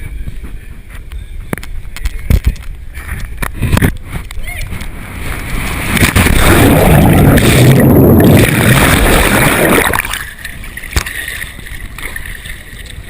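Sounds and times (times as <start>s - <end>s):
boat rushing through water: 4.2s - 13.0s.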